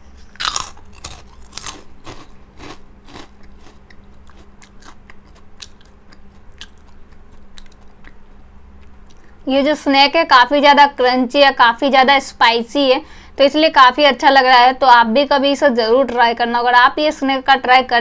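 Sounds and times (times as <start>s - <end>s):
person crunching fried snack: 0.2s - 8.2s.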